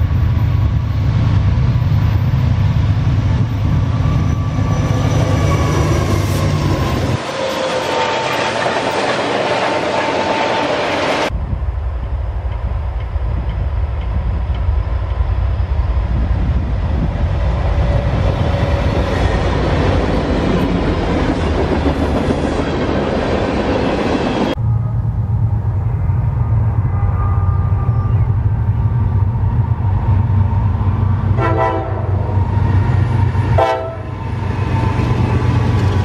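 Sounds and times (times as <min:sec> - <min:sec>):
diesel locomotive engine: 0:00.0 - 0:36.0.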